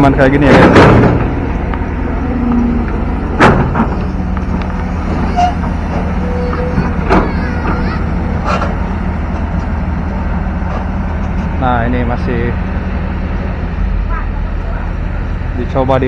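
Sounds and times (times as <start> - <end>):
excavator diesel engine running: 0.0 - 16.0
sharp machine knocks: 0.4 - 1.4.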